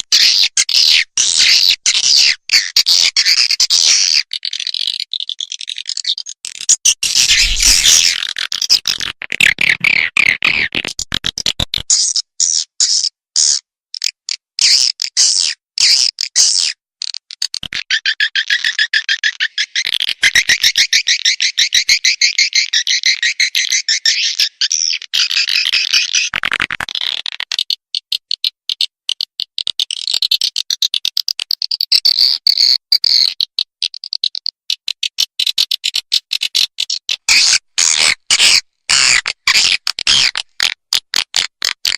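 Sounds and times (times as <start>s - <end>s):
high twittering bird chirps: 6.8s - 8.2s, 17.8s - 26.4s
buzzy bird trill: 6.8s - 8.5s, 17.8s - 26.4s
swiftlet twittering calls: 7.0s - 8.2s.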